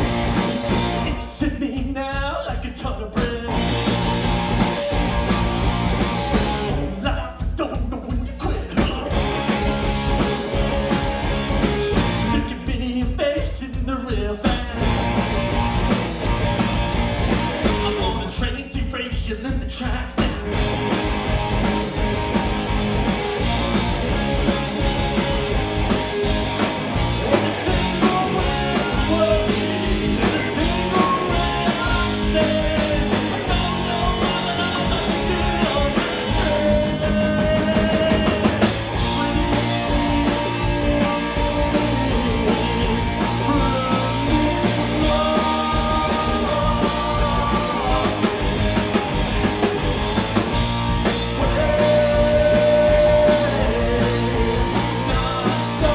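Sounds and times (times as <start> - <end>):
rock band playing: 0.0 - 1.7, 3.0 - 18.6, 19.9 - 55.9
person singing: 27.3 - 48.8, 51.3 - 55.9.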